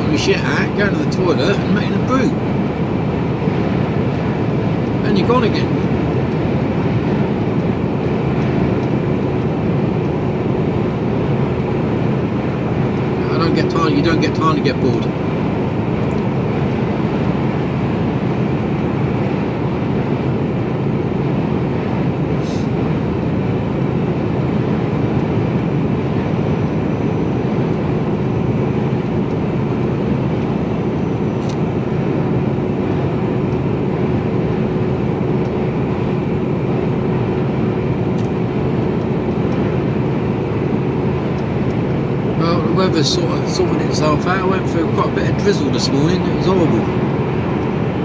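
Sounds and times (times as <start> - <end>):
faint steady hum: 0.0 - 48.0
road and tyre noise: 0.0 - 48.0
truck engine drone: 0.0 - 48.0.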